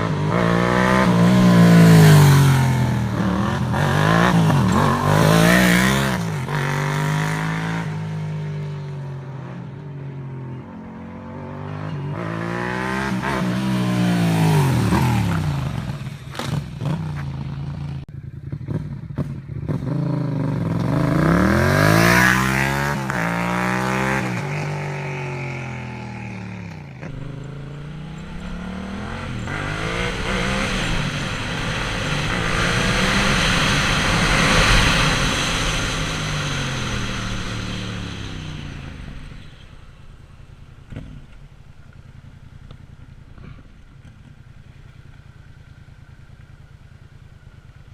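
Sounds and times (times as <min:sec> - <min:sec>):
motorcycle engine revving: 0:00.0 - 0:47.9
exhaust pops: 0:40.7 - 0:45.4.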